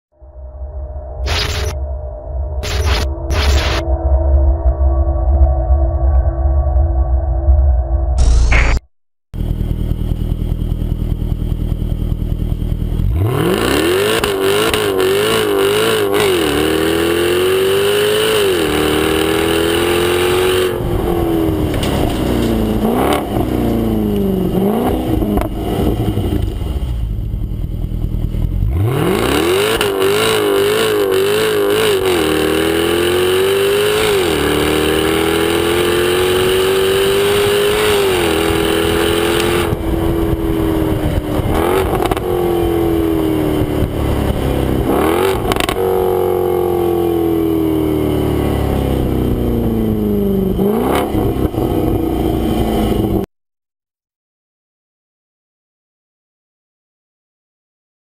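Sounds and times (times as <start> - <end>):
car engine revving and accelerating: 11.3 - 53.3.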